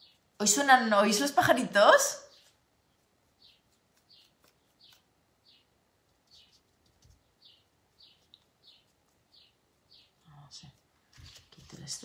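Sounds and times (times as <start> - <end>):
small songbird chirping: 0.0 - 0.6, 2.2 - 10.8.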